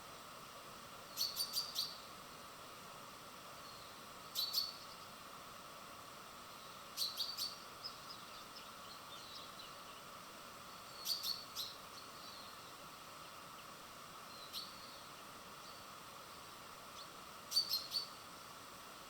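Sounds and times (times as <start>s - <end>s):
faint background hiss: 0.0s - 19.0s
small birds chirping: 1.1s - 2.0s, 3.6s - 5.1s, 6.6s - 18.2s.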